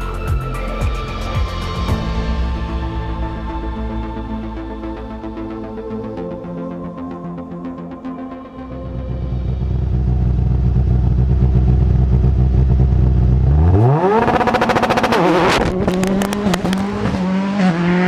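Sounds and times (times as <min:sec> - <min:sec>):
car engine idling and revving: 0:08.0 - 0:18.0.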